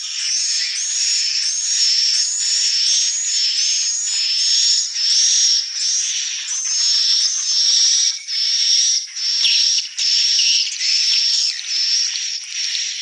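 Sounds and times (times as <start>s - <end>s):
swiftlet twittering calls: 0.0s - 13.0s.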